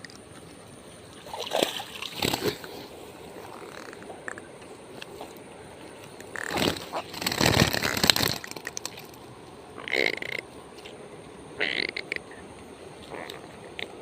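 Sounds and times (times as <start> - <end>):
water splashing: 1.1 - 3.1.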